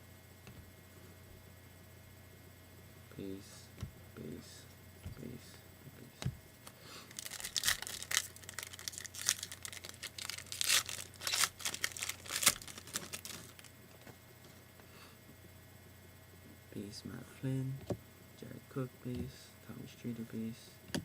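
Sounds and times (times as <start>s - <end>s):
wrapper tearing and crinkling: 7.1s - 13.7s.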